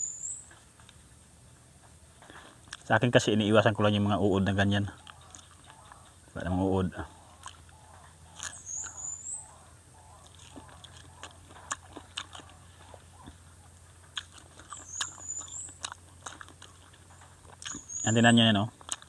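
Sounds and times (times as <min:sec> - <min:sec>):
crunching and chewing fruit: 0:00.0 - 0:19.0
wet mouth clicks: 0:05.0 - 0:05.9, 0:07.4 - 0:09.0, 0:14.1 - 0:18.0.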